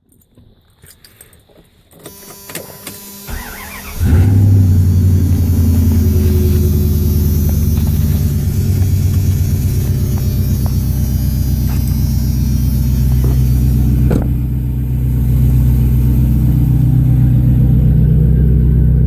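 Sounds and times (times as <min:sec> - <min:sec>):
starter motor cranking: 0:02.1 - 0:14.2
engine idling: 0:02.9 - 0:19.0.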